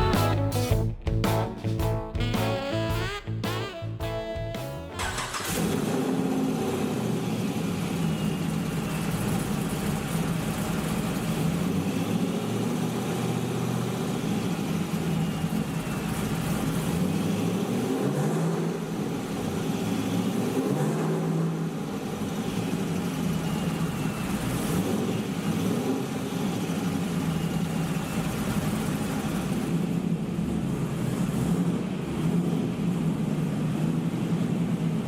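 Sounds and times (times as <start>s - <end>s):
car engine idling: 4.6s - 17.9s, 21.2s - 35.0s.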